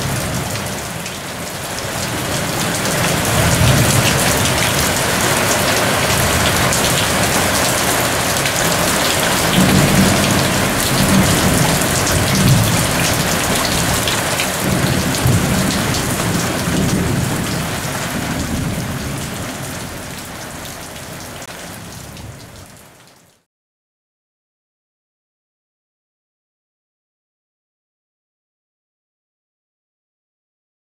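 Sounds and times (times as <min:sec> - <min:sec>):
thunder rumbling: 0:00.0 - 0:20.3
heavy rain pouring: 0:00.0 - 0:23.5.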